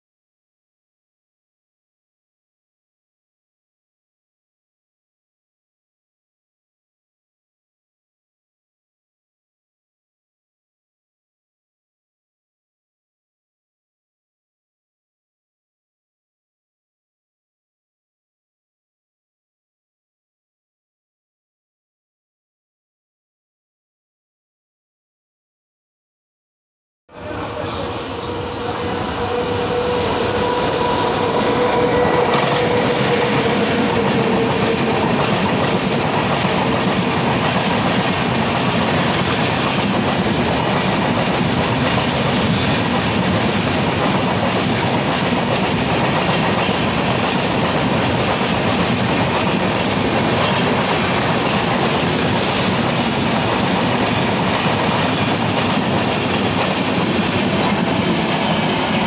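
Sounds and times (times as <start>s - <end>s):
train wheels rumbling on rails: 27.2s - 59.0s.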